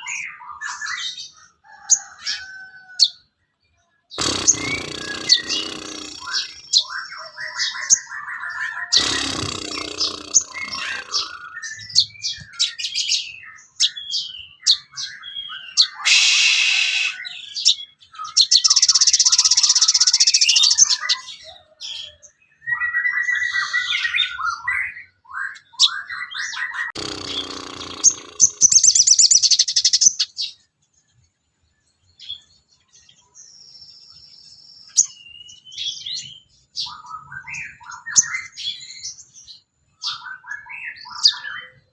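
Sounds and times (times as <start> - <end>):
songbird chirps and trills: 0.0 - 16.2
buzzy rattling bird phrases: 4.2 - 7.0, 8.9 - 12.1, 27.0 - 30.0.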